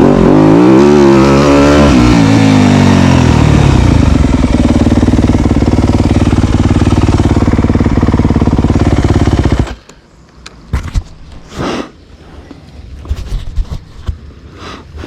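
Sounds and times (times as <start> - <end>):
dirt bike engine running: 0.0 - 9.8.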